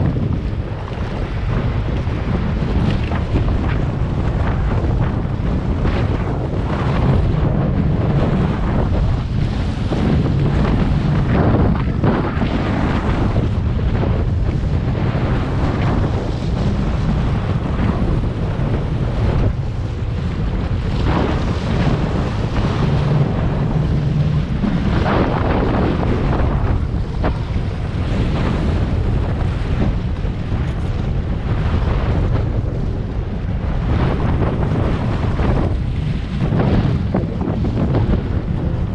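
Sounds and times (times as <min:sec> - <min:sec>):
rush of wind and water: 0:00.0 - 0:38.9
watercraft engine drone: 0:00.0 - 0:38.9
wind buffeting microphone: 0:00.0 - 0:38.9.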